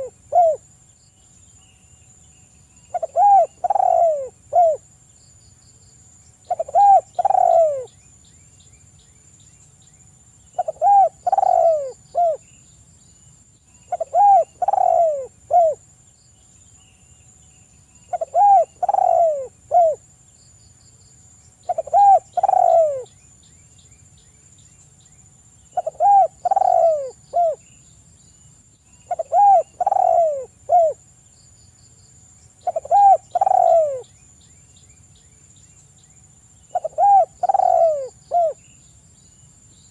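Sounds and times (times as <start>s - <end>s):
dove cooing: 0.0s - 0.6s, 2.9s - 4.8s, 6.5s - 7.9s, 10.6s - 12.4s, 13.9s - 15.8s, 18.1s - 20.0s, 21.6s - 23.1s, 25.7s - 27.6s, 29.1s - 31.0s, 32.6s - 34.1s, 36.7s - 38.6s.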